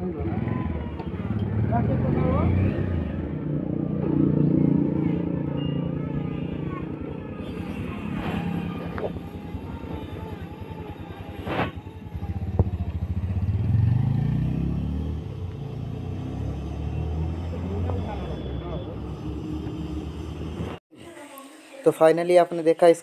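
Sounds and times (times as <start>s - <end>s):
motorcycle engine revving: 0.0s - 20.8s.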